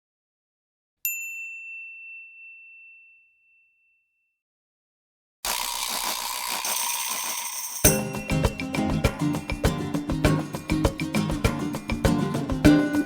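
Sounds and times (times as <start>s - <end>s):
bell ding: 1.1s - 4.1s, 6.8s - 9.6s.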